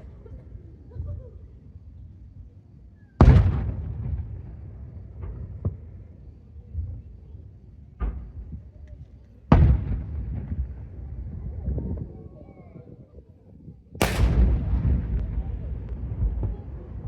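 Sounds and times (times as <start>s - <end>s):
fireworks booming: 3.2s - 6.1s, 9.5s - 11.4s, 14.0s - 17.0s
sharp firework crack: 14.0s - 17.0s.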